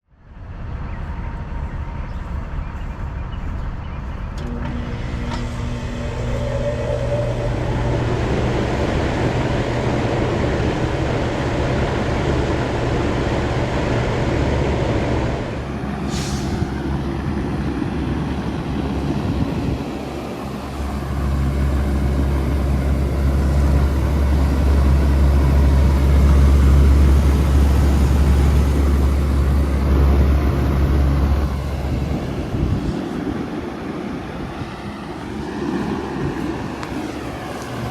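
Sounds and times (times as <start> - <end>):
deeper louder hum: 0.0 - 37.9
air conditioner hum and fan rush: 4.5 - 15.8.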